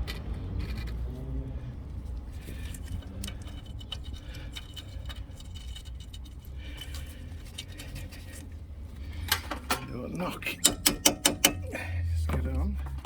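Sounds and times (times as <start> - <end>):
metal sockets clinking: 2.4 - 8.5, 10.5 - 11.7.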